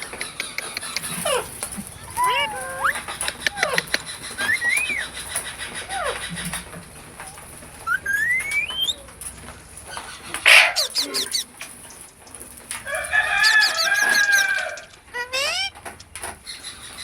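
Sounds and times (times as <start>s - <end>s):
bird harsh squawk: 0.0s - 6.6s, 7.2s - 9.2s, 9.9s - 11.6s, 13.2s - 15.8s
bird whistling rising note: 7.9s - 9.0s
crow-like bird call: 10.4s - 11.4s.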